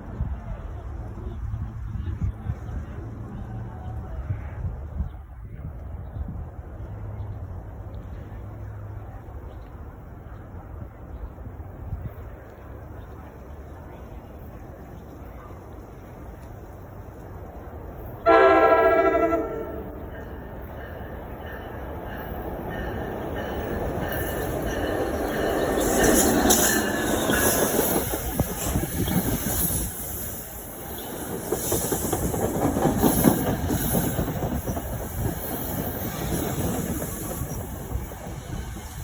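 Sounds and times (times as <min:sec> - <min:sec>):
train wheels clacking on rails: 0:18.3 - 0:39.0.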